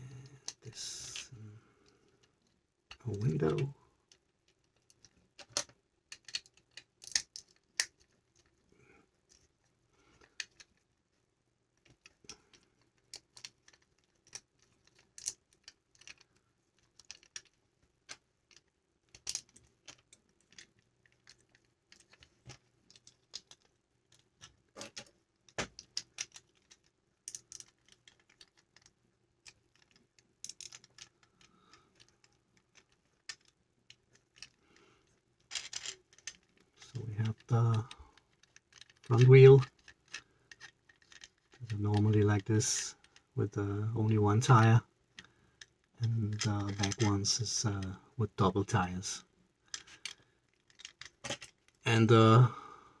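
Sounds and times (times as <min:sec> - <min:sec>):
plastic bricks clicking together: 0:02.9 - 0:08.6, 0:10.1 - 0:10.9, 0:11.8 - 0:42.1, 0:45.1 - 0:48.0, 0:49.7 - 0:51.8.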